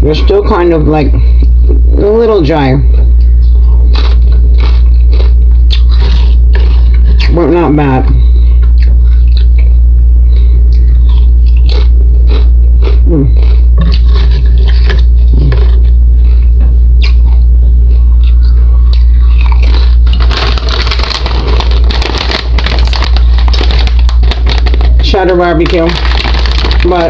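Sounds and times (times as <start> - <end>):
loud steady low hum: 0.0 - 27.0
chips crunching while chewed: 3.2 - 7.3, 10.8 - 15.9, 17.0 - 27.0
bag crinkling: 19.4 - 27.0.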